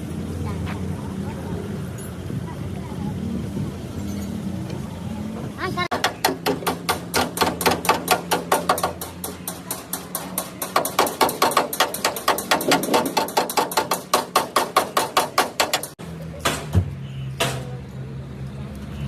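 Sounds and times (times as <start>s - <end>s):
hammer striking metal: 5.9s - 17.7s.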